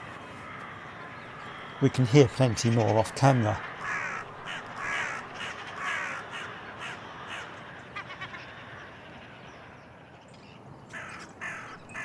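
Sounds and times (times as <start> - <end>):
crows cawing: 0.4 - 8.4, 10.9 - 12.0
bird chattering: 1.4 - 5.5, 11.4 - 12.0.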